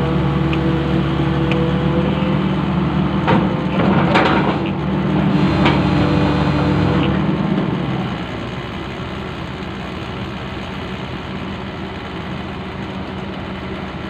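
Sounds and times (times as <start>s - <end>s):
diesel engine running: 0.0s - 14.0s
excavator scraping: 1.8s - 8.1s
metal clanks: 3.2s - 4.9s.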